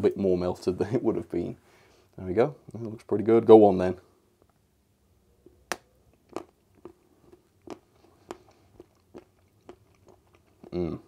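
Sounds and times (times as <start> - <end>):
chocolate snapping: 5.5 - 10.8
close-up chewing: 6.1 - 11.0.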